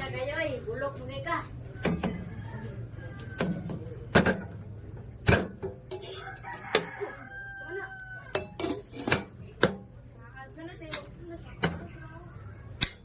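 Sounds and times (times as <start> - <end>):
rooster crowing: 1.7 - 4.0, 6.0 - 8.6.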